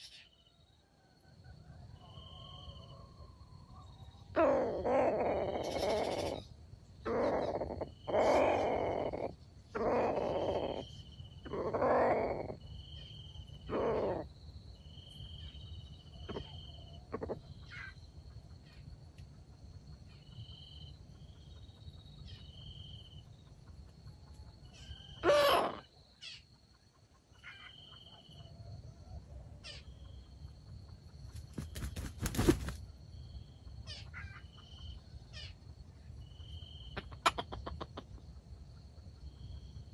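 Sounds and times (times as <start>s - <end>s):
high insect tone: 29.6s - 37.3s.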